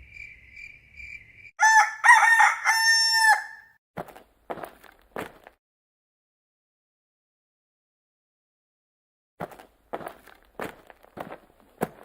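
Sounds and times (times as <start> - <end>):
crickets chirping: 0.0 - 1.6
rooster crowing: 1.6 - 3.7.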